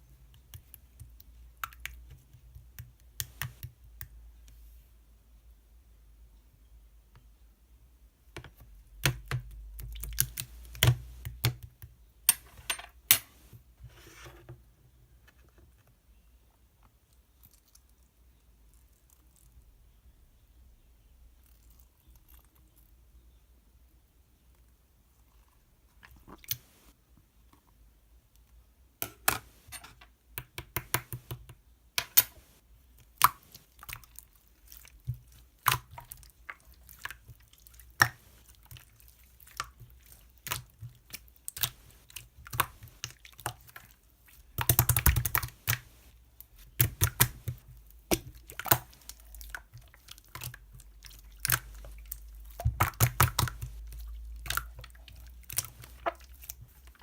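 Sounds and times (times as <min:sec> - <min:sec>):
slime clicking and popping: 0:44.6 - 0:45.9, 0:46.7 - 0:56.6.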